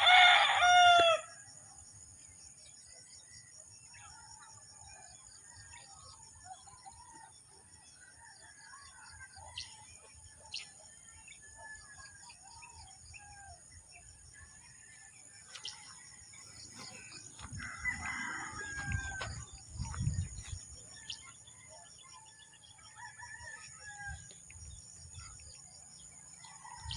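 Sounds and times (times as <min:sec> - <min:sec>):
rooster crowing: 0:00.0 - 0:01.4, 0:17.4 - 0:19.5
birds chirping and calling: 0:08.8 - 0:26.9.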